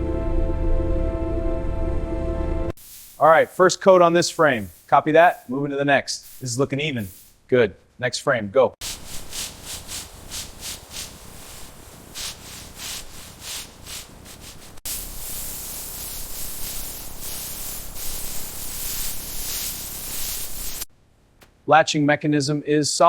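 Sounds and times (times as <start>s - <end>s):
rhythmic rubbing strokes: 2.8s - 7.4s, 8.8s - 20.9s
steady hiss: 2.8s - 7.6s, 8.8s - 20.9s.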